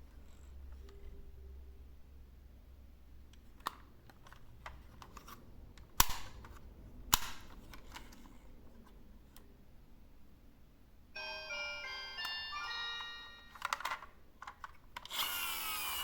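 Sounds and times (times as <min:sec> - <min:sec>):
plastic toy trucks clicking: 0:13.6 - 0:15.6.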